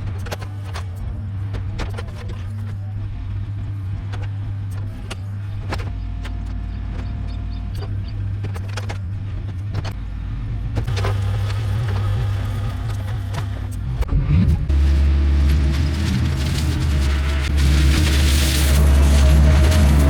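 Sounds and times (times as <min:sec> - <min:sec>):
diesel engine humming: 0:02.8 - 0:20.0.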